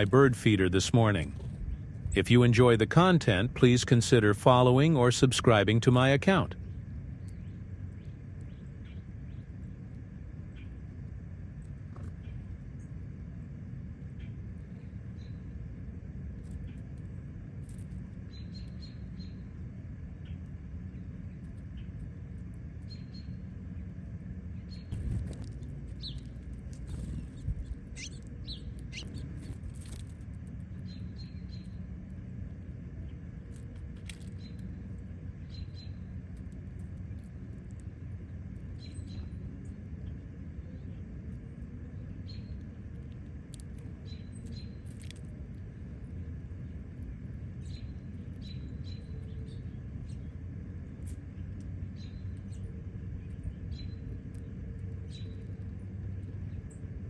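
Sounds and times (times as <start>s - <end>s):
songbirds chirping: 0.0s - 9.8s, 14.1s - 15.6s, 18.1s - 57.0s
low rumble: 0.0s - 18.2s, 19.1s - 57.0s.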